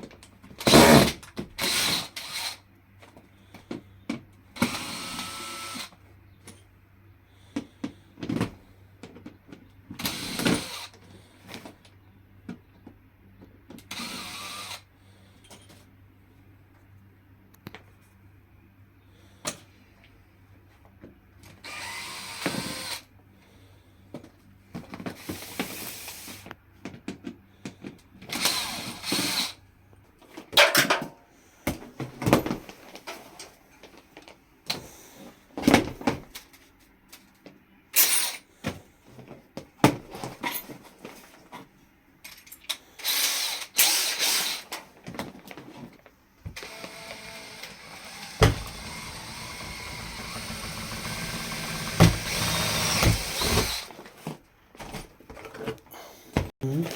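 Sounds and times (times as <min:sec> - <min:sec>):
power drill bursts: 0:00.6 - 0:02.6, 0:04.6 - 0:06.0, 0:10.0 - 0:10.9, 0:13.9 - 0:14.9, 0:21.6 - 0:23.1, 0:28.3 - 0:29.6, 0:43.0 - 0:44.7, 0:46.6 - 0:53.9.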